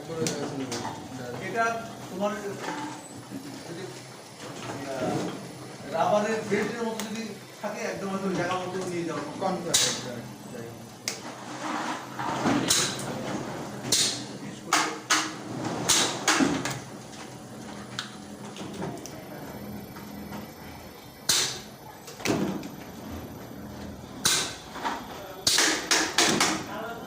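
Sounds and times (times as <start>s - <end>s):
factory machinery humming: 0.0s - 27.0s
sharp knocks and clatters: 13.9s - 16.8s, 24.2s - 26.7s.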